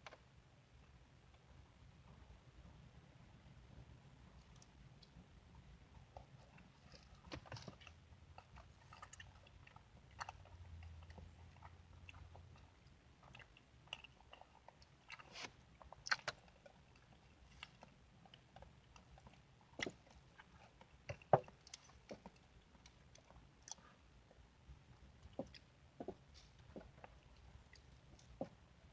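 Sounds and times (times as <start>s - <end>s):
person chewing food: 6.0s - 28.6s.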